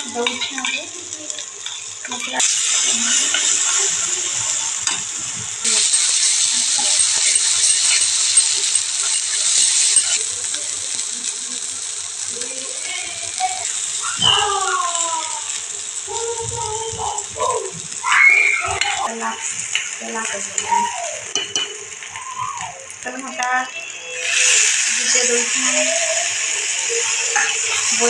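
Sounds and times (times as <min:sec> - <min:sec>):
potatoes sizzling in hot oil: 0:00.0 - 0:28.0
metal ladle scraping a pan: 0:05.6 - 0:10.3
short pitched cry: 0:17.5 - 0:18.8.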